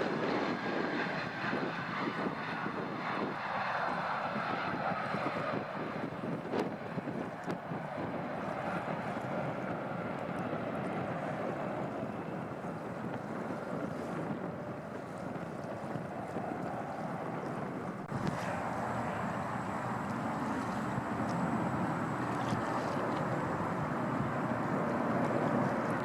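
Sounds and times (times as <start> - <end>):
wind buffeting microphone: 0.0 - 26.0
steady rushing noise: 13.0 - 26.0.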